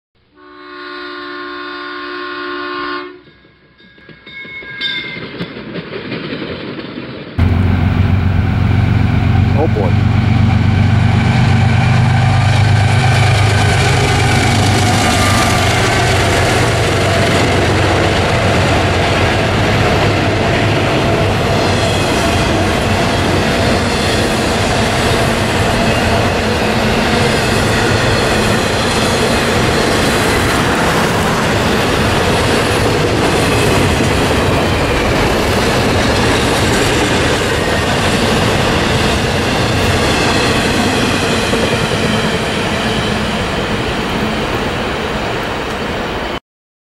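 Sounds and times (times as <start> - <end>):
freight train wheels on rail: 2.6 - 46.4
deep low hum: 7.4 - 12.8.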